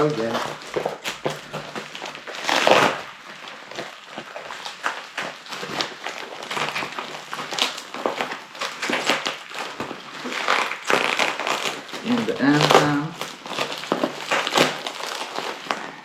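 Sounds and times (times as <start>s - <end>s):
packaging crinkling and rustling: 0.0s - 16.0s.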